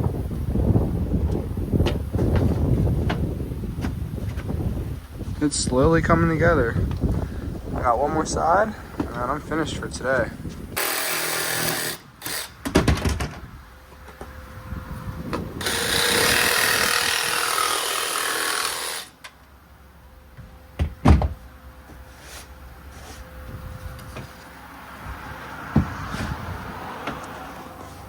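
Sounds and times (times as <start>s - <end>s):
power tool running: 10.8s - 12.6s, 15.6s - 19.2s
loud thumps: 20.4s - 21.4s.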